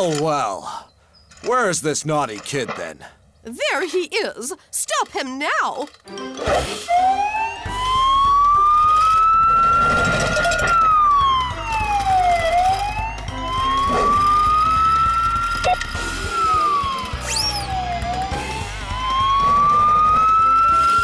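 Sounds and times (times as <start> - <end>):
wailing siren: 6.9 - 21.0.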